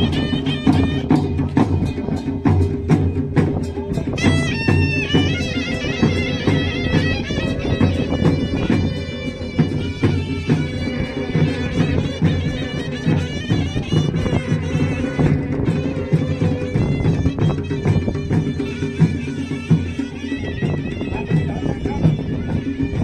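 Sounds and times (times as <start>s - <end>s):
dense drumming: 0.0s - 23.0s
reedy wind instrument melody: 0.0s - 23.0s.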